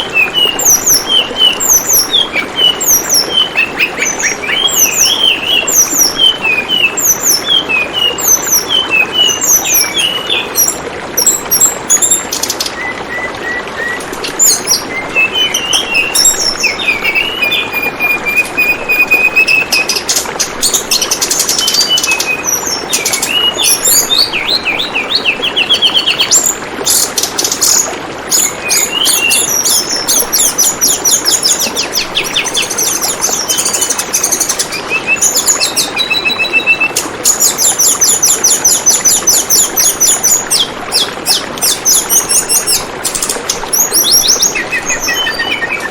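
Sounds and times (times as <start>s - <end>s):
songbird chirping and trilling: 0.0s - 45.9s
trickling water: 0.0s - 45.9s.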